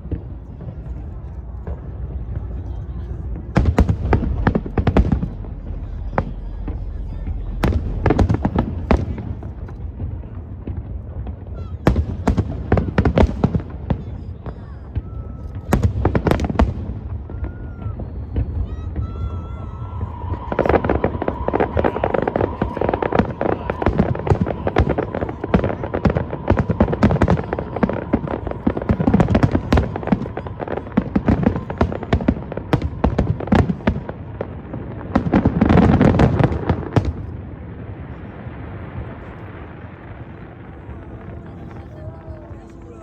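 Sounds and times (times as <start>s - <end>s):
crowd hubbub: 0.0s - 43.0s
fireworks crackling and bursting: 0.0s - 43.0s.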